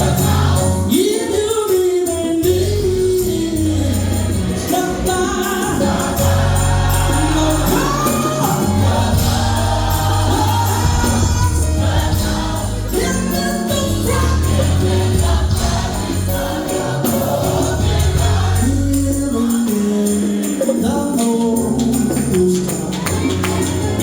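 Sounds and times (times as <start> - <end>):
steady bass line: 0.0 - 0.9, 2.4 - 19.4
band accompaniment: 0.0 - 24.0
gospel choir singing: 0.0 - 24.0.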